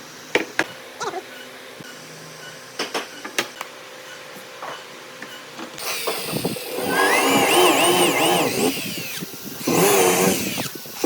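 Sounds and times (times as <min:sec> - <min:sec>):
power tool motor whine: 0:05.8 - 0:11.0.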